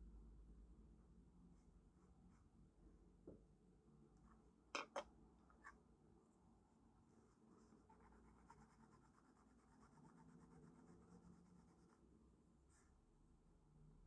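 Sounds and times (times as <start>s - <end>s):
pencils scratching on paper: 7.2s - 12.1s.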